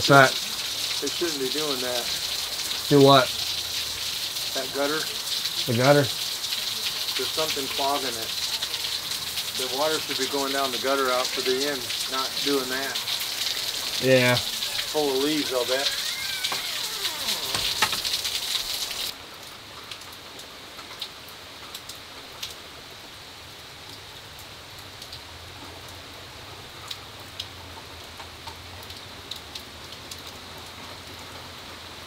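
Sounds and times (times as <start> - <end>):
sharp drip ticks: 0.0 - 14.0
heavy rain: 0.0 - 32.0.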